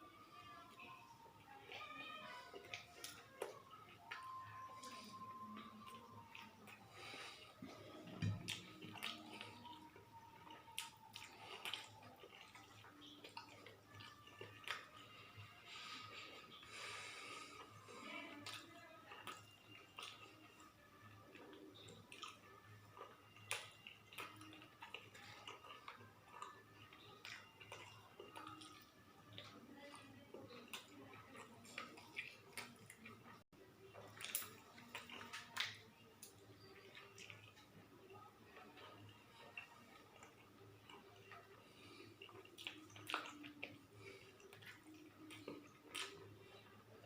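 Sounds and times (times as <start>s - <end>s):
person chewing: 1.4s - 47.0s
mouth clicks and smacks: 42.2s - 46.7s.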